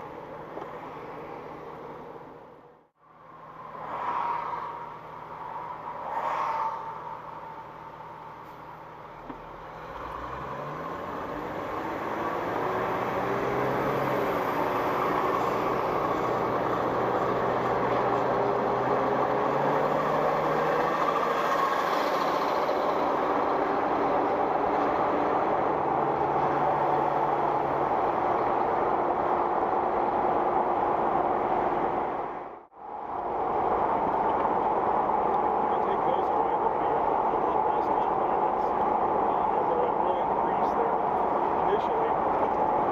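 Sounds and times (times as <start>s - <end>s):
road noise: 0.0s - 42.9s
vehicle engine accelerating: 9.2s - 42.9s.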